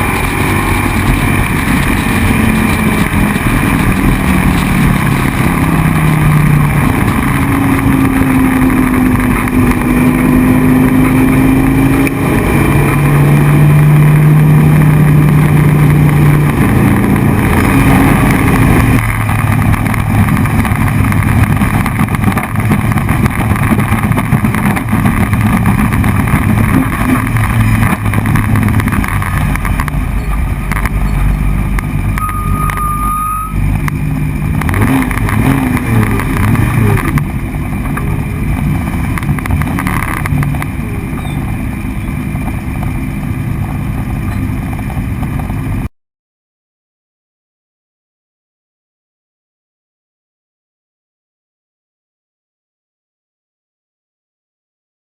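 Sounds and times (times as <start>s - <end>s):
race car engine revving: 0.0s - 45.8s.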